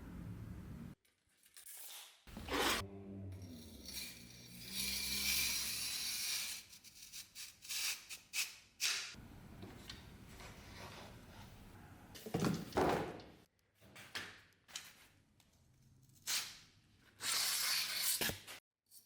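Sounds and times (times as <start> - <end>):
rasping metal scrape: 2.3 - 8.1.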